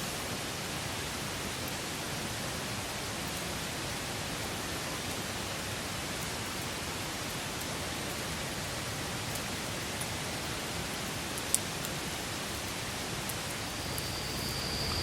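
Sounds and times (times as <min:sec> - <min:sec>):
faint fire crackles: 0:00.7 - 0:15.0
campfire hissing: 0:08.3 - 0:15.0.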